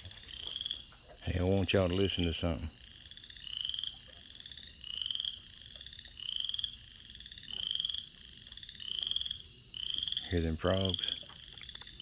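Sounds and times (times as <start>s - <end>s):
frogs trilling: 0.0s - 12.0s.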